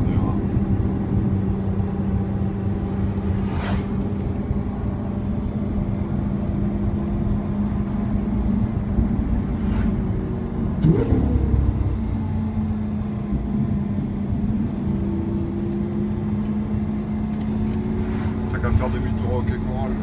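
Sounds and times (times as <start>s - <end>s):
car engine cruising drone: 0.0s - 20.0s
tyre and road rumble: 2.1s - 4.8s, 8.2s - 12.6s, 17.0s - 20.0s
short whoosh: 2.9s - 4.4s, 9.2s - 11.9s.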